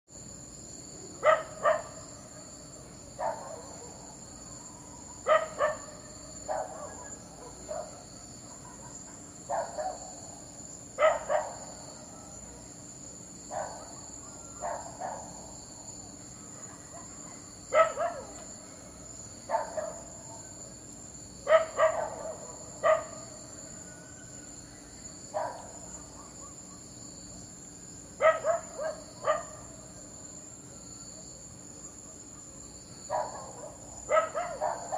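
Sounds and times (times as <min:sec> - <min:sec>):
crickets chirring: 0:00.1 - 0:34.9
dog barking: 0:01.2 - 0:02.0, 0:03.2 - 0:04.1, 0:05.2 - 0:10.2, 0:11.0 - 0:11.8, 0:13.5 - 0:15.5, 0:16.6 - 0:18.5, 0:19.5 - 0:20.2, 0:21.4 - 0:23.3, 0:25.3 - 0:26.8, 0:28.2 - 0:29.7, 0:32.0 - 0:34.9.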